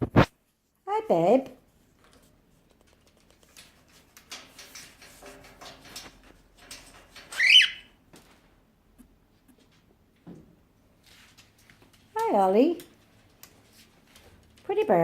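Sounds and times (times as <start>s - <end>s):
parrot whistled squawk: 7.4s - 7.9s.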